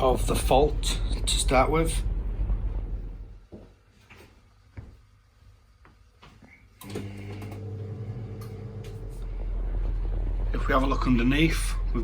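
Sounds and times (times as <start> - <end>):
low machine hum: 6.8 - 12.0.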